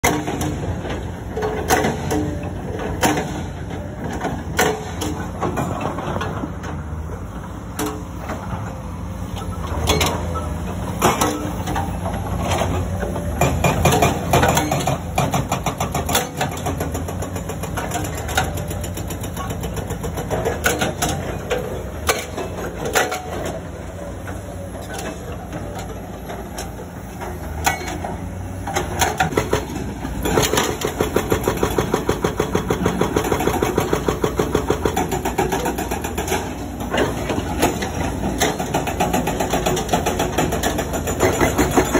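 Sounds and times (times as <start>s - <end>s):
excavator diesel engine under load: 0.0s - 41.9s
hydraulic breaker hammering rock: 11.0s - 23.6s, 27.3s - 41.9s.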